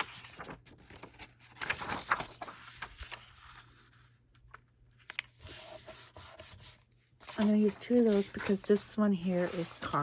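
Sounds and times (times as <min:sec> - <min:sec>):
paper rustling and sliding: 0:00.0 - 0:10.0.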